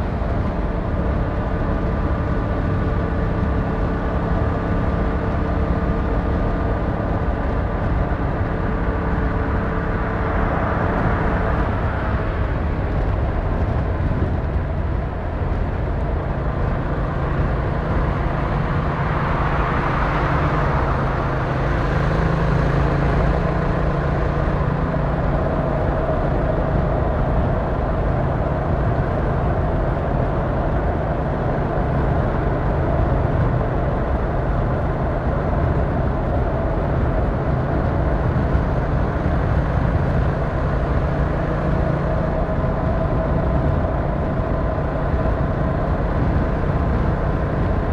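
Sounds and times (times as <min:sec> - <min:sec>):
motorcycle engine cruising: 0:00.0 - 0:30.3
road noise: 0:00.0 - 0:47.9
wind noise: 0:00.0 - 0:47.9.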